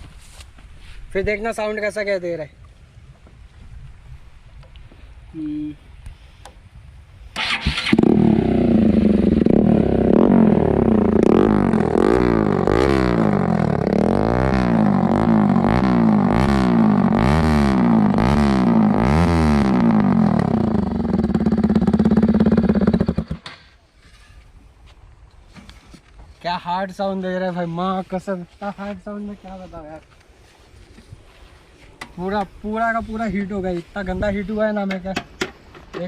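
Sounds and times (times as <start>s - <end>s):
motorcycle engine starting: 7.3s - 23.7s
motorcycle throttle blips: 7.4s - 23.5s
motorcycle engine idling: 19.9s - 23.5s.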